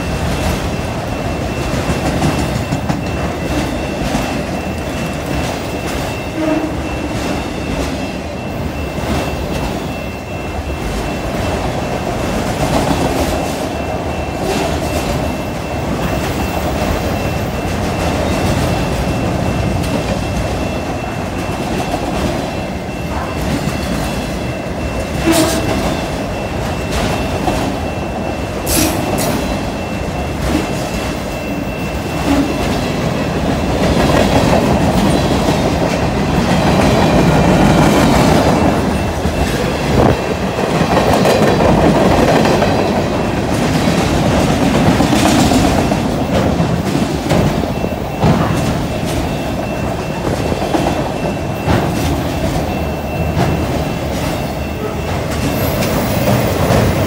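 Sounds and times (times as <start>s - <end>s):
clickety-clack over rail joints: 0.0s - 57.0s
steel wheels rumbling on rails: 0.0s - 57.0s
faint high ring: 52.6s - 56.5s.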